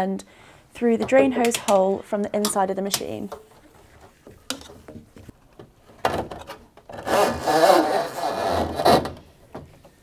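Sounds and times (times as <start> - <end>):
hose scraping against opening: 7.0 - 9.1.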